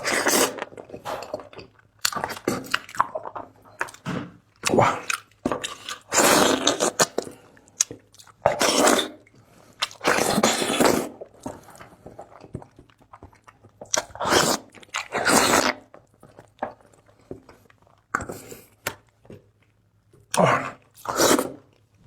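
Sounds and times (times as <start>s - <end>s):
loud biting and chewing: 4.6s - 11.2s, 12.3s - 16.4s, 20.3s - 21.8s.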